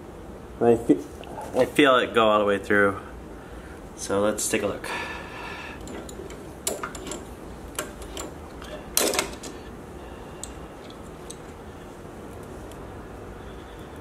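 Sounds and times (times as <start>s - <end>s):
steady low hum: 0.0s - 14.0s
metal parts clicking and knocking: 5.8s - 9.6s.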